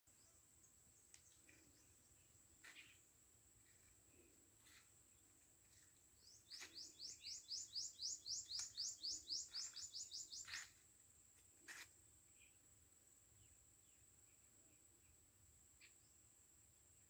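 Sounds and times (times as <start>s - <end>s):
small bird chirping rapidly: 5.8s - 10.8s.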